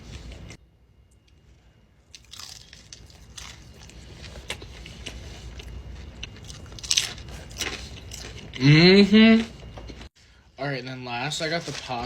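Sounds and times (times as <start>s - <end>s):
biting and chewing crunchy food: 2.0s - 8.6s.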